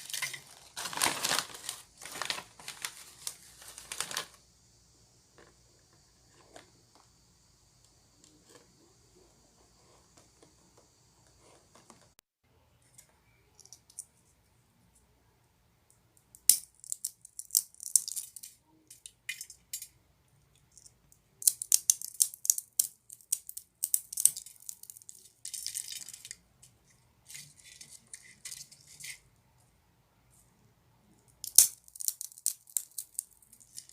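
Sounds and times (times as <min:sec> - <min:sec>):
snack bag crinkling and rattling: 0:00.0 - 0:04.4.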